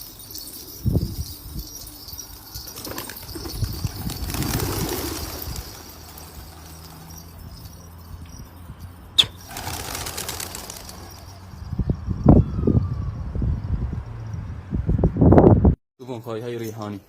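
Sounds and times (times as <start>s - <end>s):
pigeon wings flapping: 2.7s - 7.2s, 9.2s - 11.5s.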